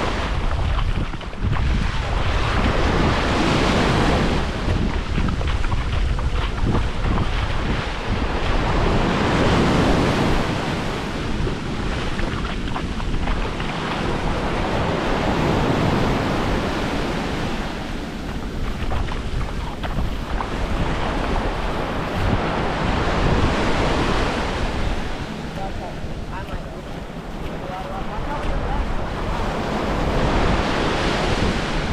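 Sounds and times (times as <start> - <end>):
surf washing onto beach: 0.0 - 31.9
wind buffeting microphone: 0.0 - 31.9.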